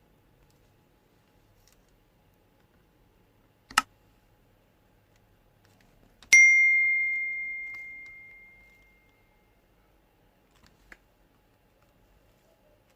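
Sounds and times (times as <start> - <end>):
bell-like ringing strike: 6.4 - 9.0.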